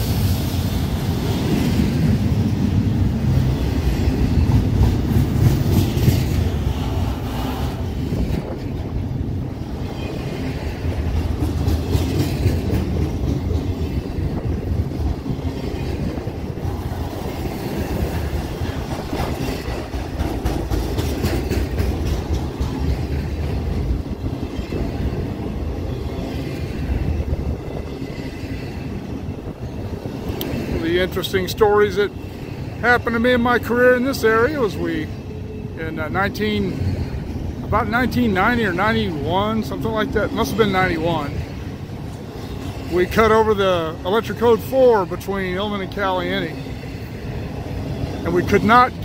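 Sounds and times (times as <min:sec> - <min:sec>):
steel wheels rumbling on rail: 0:00.0 - 0:49.0
wheels clicking over rail joints: 0:01.0 - 0:31.6.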